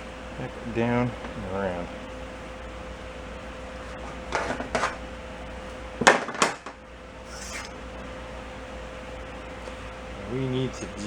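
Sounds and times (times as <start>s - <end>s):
faint steady hum: 0.0s - 11.0s
metal tools clattering: 7.3s - 7.8s.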